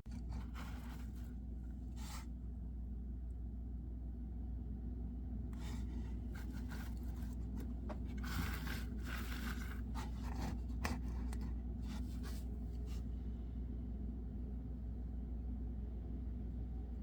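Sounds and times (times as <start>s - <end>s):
steady low hum: 0.0s - 17.0s
knife scraping wood: 5.6s - 13.0s.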